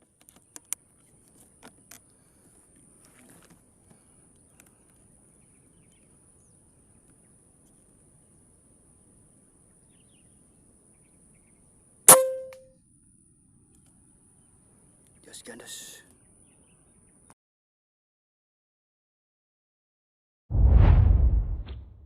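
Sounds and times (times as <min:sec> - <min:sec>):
air rifle shot: 0:12.1 - 0:12.6.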